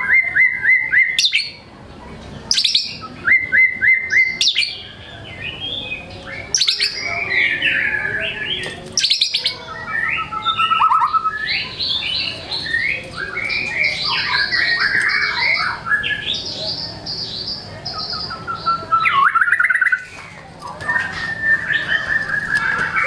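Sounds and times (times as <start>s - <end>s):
songbird singing: 0.0s - 23.0s
drawn-out bird whistle: 20.9s - 23.0s.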